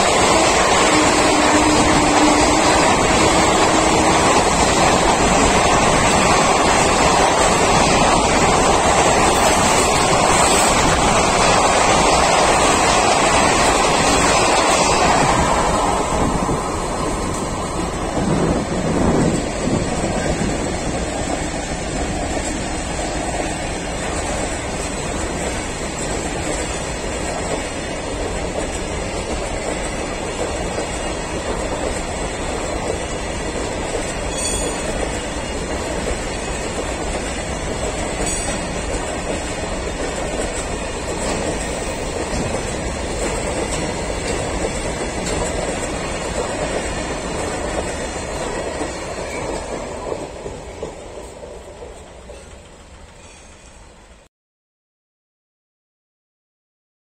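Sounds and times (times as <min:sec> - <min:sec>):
freight train wheels rumbling on rails: 0:00.0 - 0:54.3.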